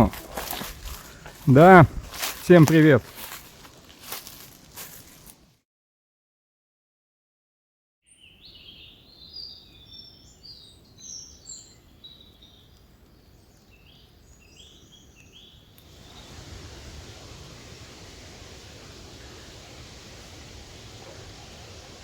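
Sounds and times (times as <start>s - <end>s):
songbirds chirping and trilling: 0.0s - 5.3s, 8.1s - 17.4s
steady rushing hiss: 0.0s - 5.5s, 12.8s - 22.0s.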